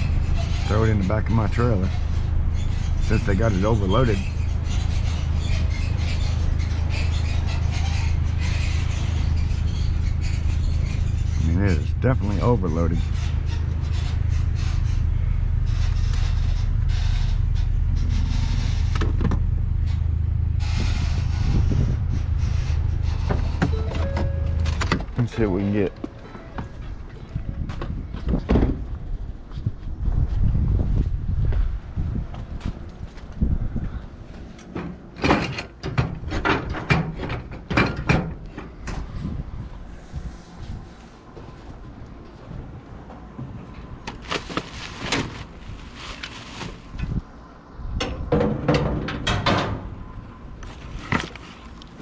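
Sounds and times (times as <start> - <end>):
wind rumble on microphone: 0.0 - 25.4, 26.0 - 35.1, 35.9 - 52.0
rummaging in a dumpster: 0.0 - 28.9, 34.4 - 47.3, 48.0 - 52.0
scraping and rustling: 43.4 - 47.2, 50.6 - 52.0.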